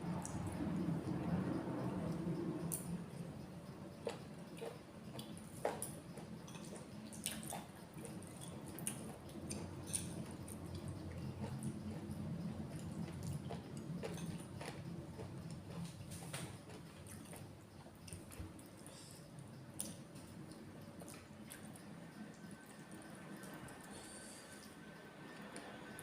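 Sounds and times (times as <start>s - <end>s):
person chewing food: 4.0s - 24.8s.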